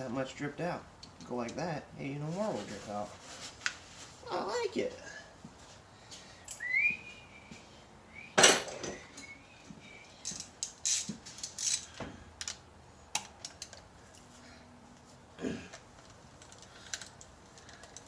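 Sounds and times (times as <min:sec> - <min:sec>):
loud metal clank: 0:08.4 - 0:09.0.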